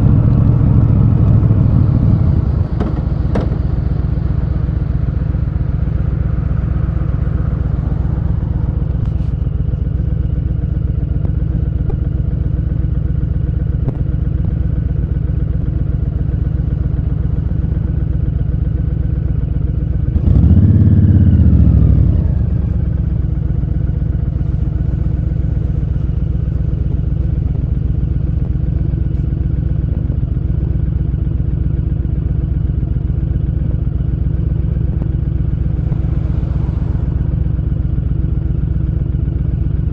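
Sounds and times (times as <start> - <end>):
motorcycle engine revving: 0.0 - 9.9, 19.9 - 29.2, 34.0 - 39.9.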